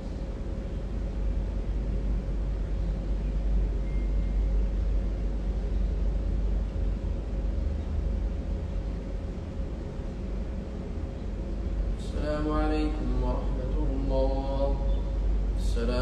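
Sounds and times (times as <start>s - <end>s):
faint even hum: 0.0s - 16.0s.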